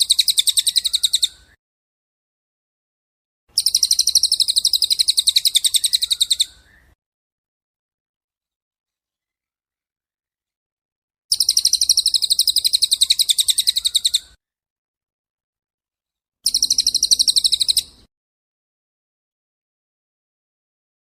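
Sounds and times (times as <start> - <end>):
songbird trilling: 0.0 - 1.6, 3.6 - 7.0, 11.3 - 14.4, 16.4 - 18.1.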